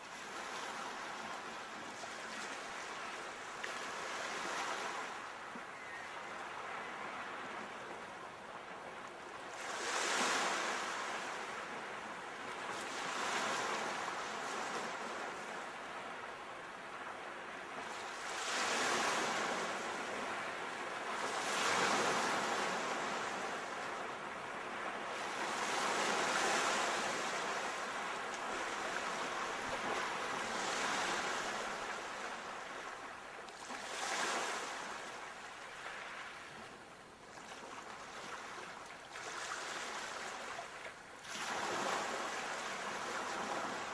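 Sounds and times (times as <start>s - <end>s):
ocean waves rushing in: 18.0s - 36.4s.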